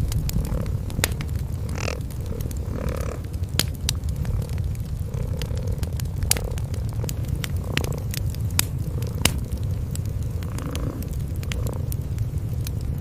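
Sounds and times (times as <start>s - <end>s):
cats purring: 0.0s - 13.0s
fire crackling: 0.0s - 13.0s.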